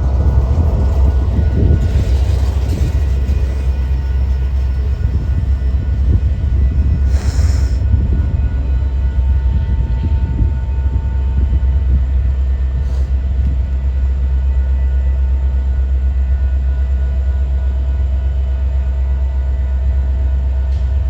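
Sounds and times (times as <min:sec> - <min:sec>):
train rolling rumble: 0:00.0 - 0:21.0.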